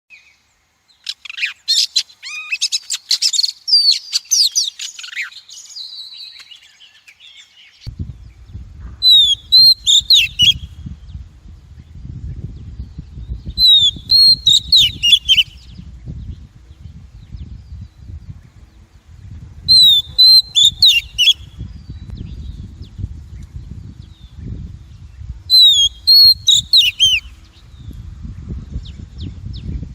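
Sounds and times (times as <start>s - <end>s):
bird singing chirps and whistles: 1.0s - 8.4s, 9.0s - 11.2s, 12.3s - 16.5s, 19.6s - 22.9s, 23.7s - 27.9s
low rumble: 7.9s - 9.6s, 10.6s - 14.1s, 15.5s - 20.6s, 27.3s - 29.9s.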